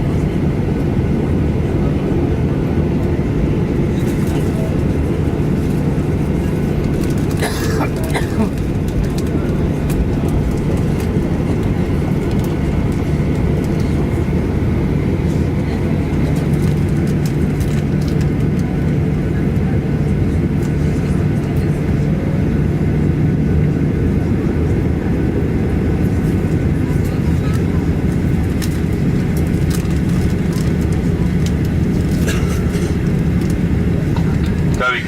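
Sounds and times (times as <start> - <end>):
jet engine cabin rumble: 0.0 - 35.0
light cabin rattles: 26.2 - 35.0.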